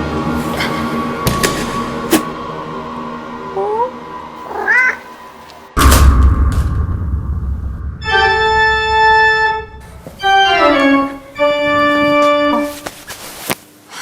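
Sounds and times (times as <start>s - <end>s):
organ-like keyboard chords: 8.0s - 12.7s.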